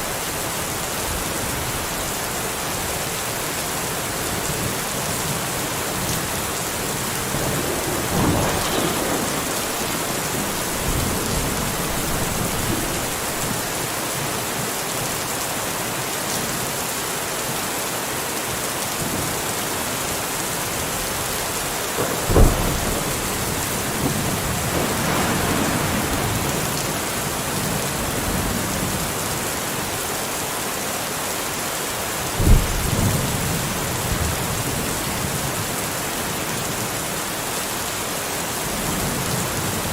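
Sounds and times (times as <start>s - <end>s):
steady rain: 0.0s - 39.9s
rolling thunder: 5.3s - 14.3s, 22.0s - 29.6s, 32.4s - 35.4s
sharp thunder claps: 6.6s - 14.0s, 22.0s - 29.2s, 32.4s - 33.6s.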